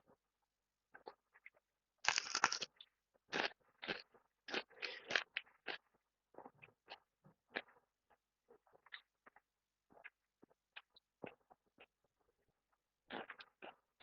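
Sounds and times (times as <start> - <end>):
crunching and chewing: 1.0 - 7.8, 13.0 - 14.0.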